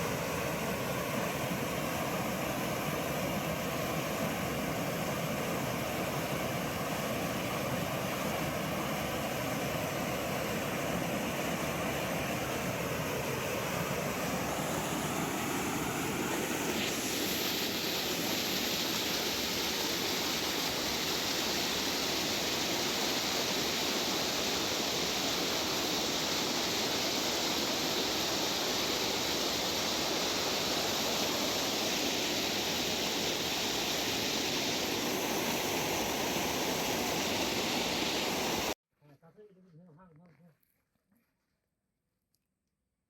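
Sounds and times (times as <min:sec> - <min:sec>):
water rushing: 0:00.0 - 0:38.8.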